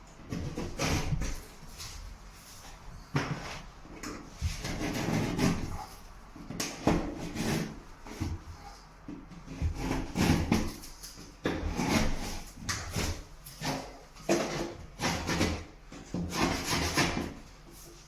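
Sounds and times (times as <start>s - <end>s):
blade rasping through plasterboard: 0.2s - 1.9s, 4.3s - 18.0s.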